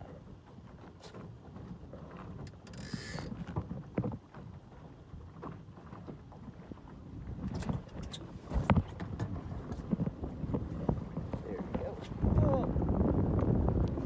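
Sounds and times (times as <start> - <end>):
boat and water noise: 0.0 - 14.0
wind rumbling on microphone: 0.0 - 14.0.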